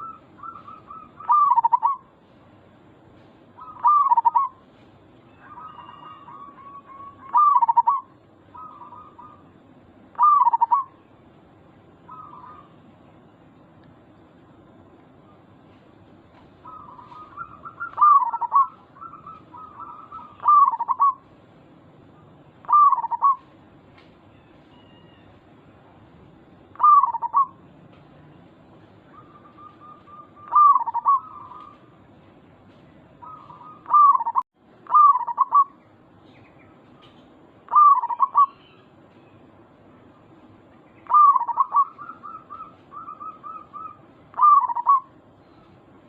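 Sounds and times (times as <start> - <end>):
dove cooing: 0.0 - 2.1, 3.6 - 4.6, 5.4 - 11.0, 12.1 - 12.8, 16.6 - 21.3, 22.6 - 23.5, 26.7 - 27.6, 29.1 - 31.9, 33.2 - 35.8, 37.7 - 38.7, 41.0 - 45.2.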